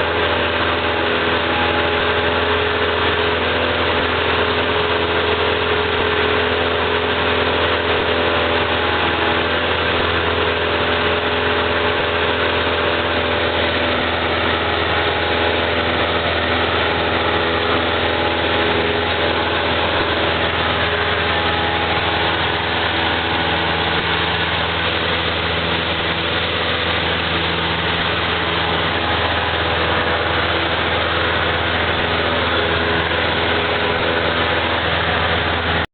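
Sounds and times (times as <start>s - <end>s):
propeller plane engine droning: 0.0s - 35.9s.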